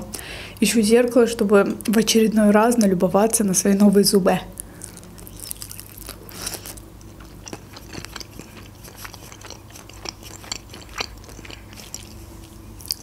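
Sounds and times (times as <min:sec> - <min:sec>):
chewing mouth clicks and smacks: 0:04.6 - 0:13.0.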